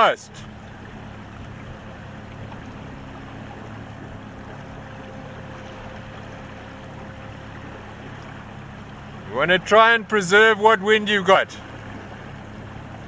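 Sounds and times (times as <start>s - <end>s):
water wash: 0.0s - 13.0s
low hum: 0.1s - 10.1s.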